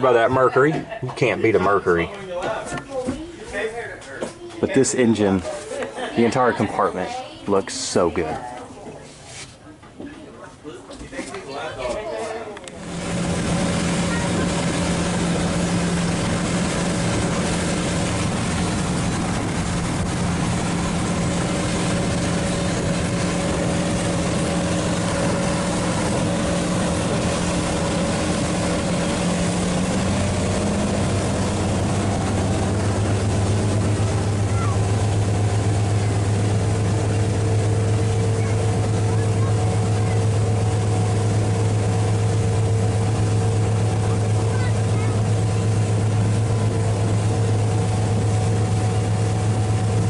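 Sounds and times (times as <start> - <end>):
boat engine running: 0.0 - 3.8, 12.6 - 50.0
rushing noise: 12.8 - 50.0.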